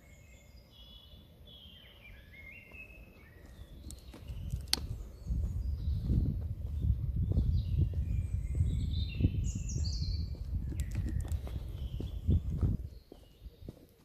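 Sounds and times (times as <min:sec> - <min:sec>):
birds singing: 0:00.0 - 0:14.0
low rumble on microphone: 0:03.6 - 0:13.1.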